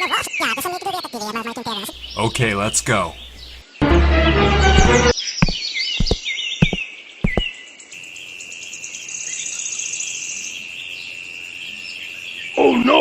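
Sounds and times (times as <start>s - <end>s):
sharp knocks: 4.7s - 7.5s.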